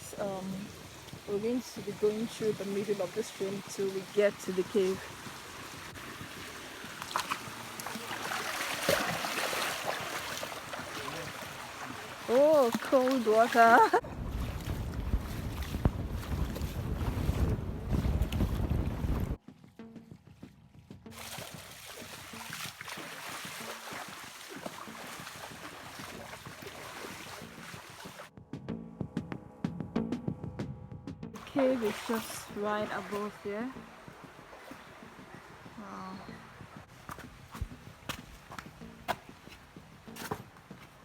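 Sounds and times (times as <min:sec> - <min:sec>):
faint background music: 0:00.0 - 0:14.0, 0:19.4 - 0:41.0
water sloshing around legs: 0:00.0 - 0:18.8, 0:21.1 - 0:28.3, 0:31.4 - 0:41.0
stream splashing: 0:00.0 - 0:19.4, 0:21.1 - 0:28.3, 0:31.4 - 0:41.0
wind rumble on microphone: 0:13.8 - 0:19.4
microphone handling noise: 0:14.0 - 0:19.4.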